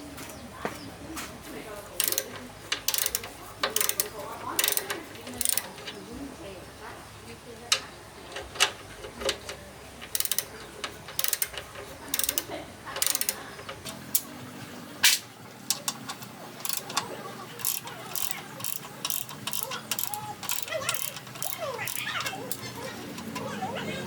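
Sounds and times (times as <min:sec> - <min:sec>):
ratchet wrench clicking: 0:02.0 - 0:06.0, 0:07.7 - 0:14.4, 0:15.0 - 0:23.6
single sharp click: 0:15.0 - 0:15.3.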